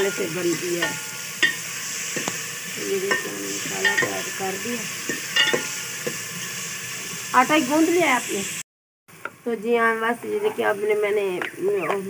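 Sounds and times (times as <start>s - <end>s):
metal ladle knocking on pot: 0.0s - 1.6s, 3.1s - 4.4s, 5.1s - 6.2s
spices sizzling in oil: 0.0s - 12.0s.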